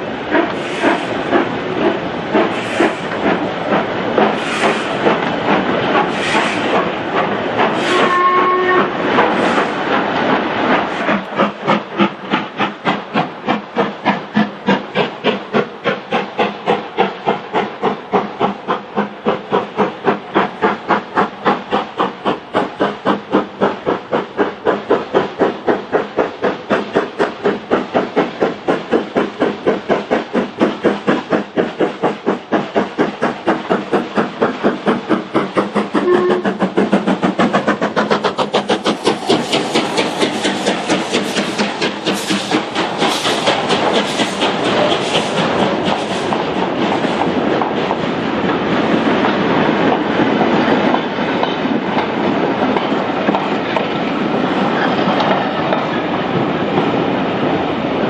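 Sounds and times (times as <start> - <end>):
steam locomotive chuffing: 0.0 - 58.0
steam locomotive whistle: 7.8 - 9.0, 36.0 - 36.5.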